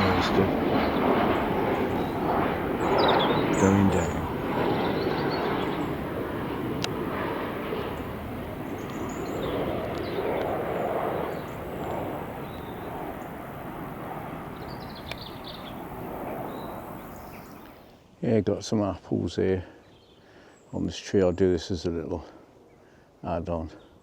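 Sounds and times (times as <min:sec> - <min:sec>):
jet airliner passing by: 0:00.0 - 0:17.9.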